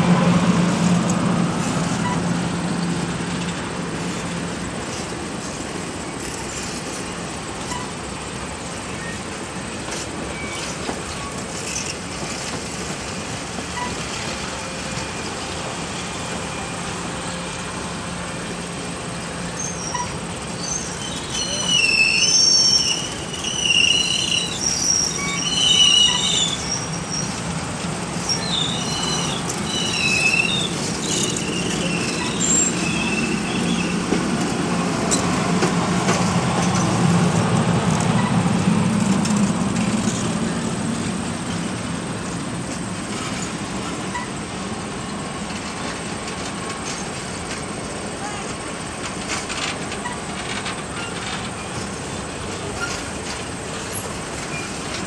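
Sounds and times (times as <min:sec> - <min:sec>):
low rumble of rail cars: 0:00.0 - 0:55.0
train wheels squealing: 0:07.6 - 0:08.0, 0:08.9 - 0:09.4, 0:10.2 - 0:12.5, 0:13.7 - 0:15.5, 0:19.5 - 0:27.5, 0:28.2 - 0:34.2, 0:38.1 - 0:38.4, 0:44.1 - 0:44.4, 0:50.0 - 0:53.2, 0:53.8 - 0:55.0.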